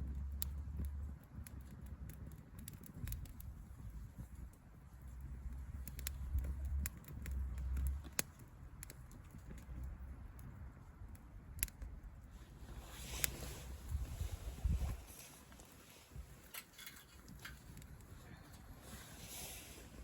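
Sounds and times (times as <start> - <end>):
wind rumble on microphone: 0.0 - 16.5.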